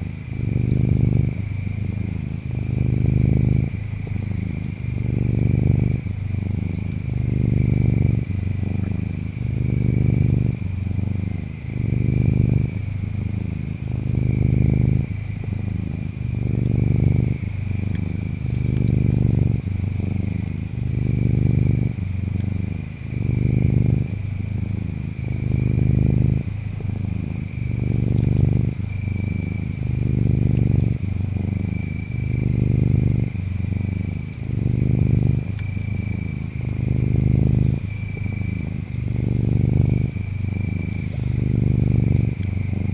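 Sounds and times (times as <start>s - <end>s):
cat purring: 0.0s - 42.9s
insects trilling: 0.0s - 42.9s.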